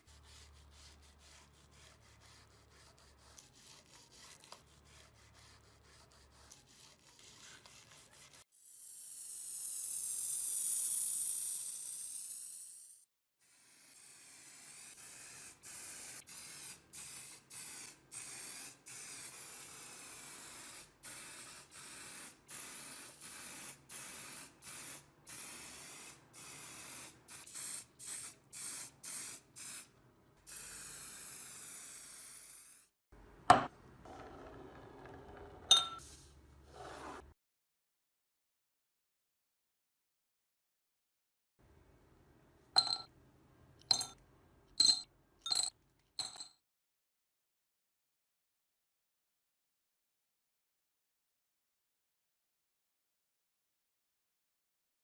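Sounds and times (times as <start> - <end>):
spray paint hissing: 8.2 - 29.9, 30.5 - 32.9.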